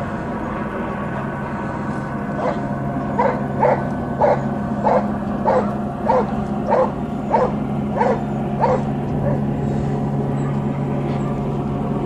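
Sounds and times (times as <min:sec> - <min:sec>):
steady low hum: 0:00.0 - 0:12.0
dog barking: 0:03.2 - 0:09.4.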